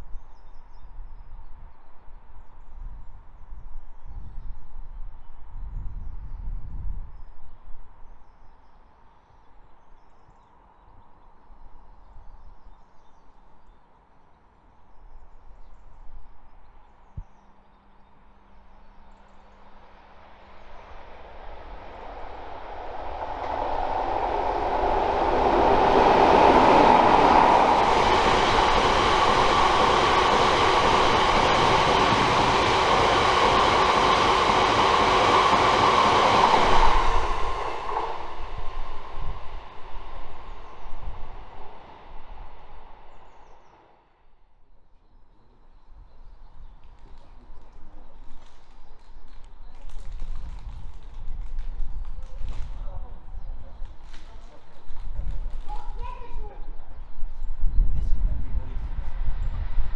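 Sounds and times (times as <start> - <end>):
freight train rushing past: 19.7 - 44.1
diesel locomotive engine: 20.2 - 43.8.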